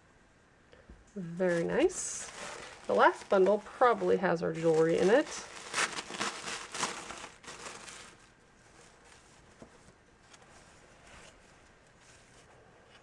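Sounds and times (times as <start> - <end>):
packaging crinkling: 1.4 - 9.5.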